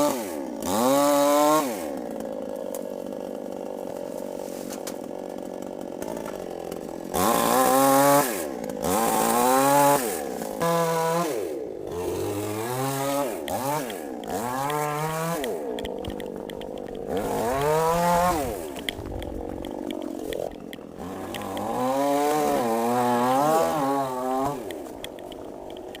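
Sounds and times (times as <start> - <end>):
chainsaw cutting wood: 0.0 - 26.0
chainsaw revving: 0.0 - 26.0.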